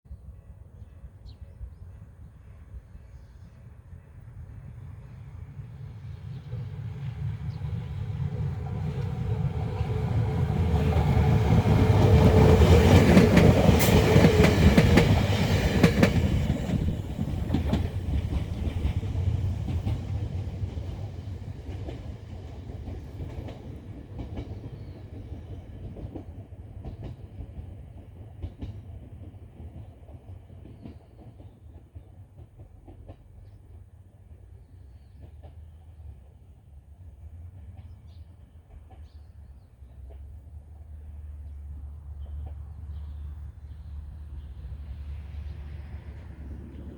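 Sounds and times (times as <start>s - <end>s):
electric train passing: 0.2s - 34.6s, 35.2s - 46.9s
wheels clacking over rail joints: 8.7s - 33.8s.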